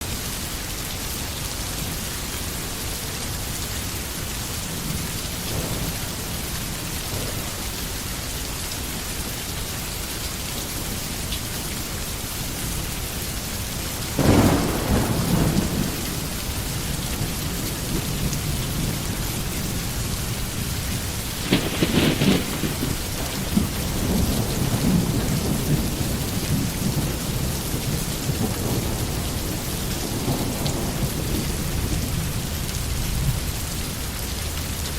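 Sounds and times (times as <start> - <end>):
heavy rain: 0.0 - 34.9
low rolling thunder rumble: 3.8 - 8.8, 13.6 - 34.1
thunderclap: 4.6 - 7.9, 14.1 - 33.4.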